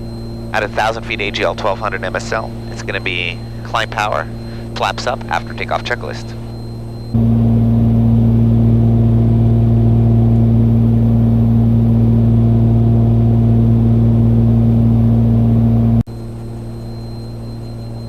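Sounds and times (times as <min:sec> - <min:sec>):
aircraft engines droning: 0:00.0 - 0:16.4.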